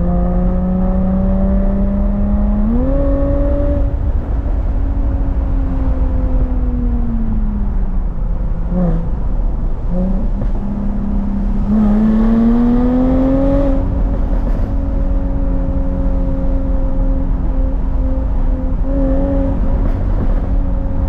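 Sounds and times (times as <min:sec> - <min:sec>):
car engine revving: 0:00.0 - 0:04.7, 0:09.8 - 0:21.0.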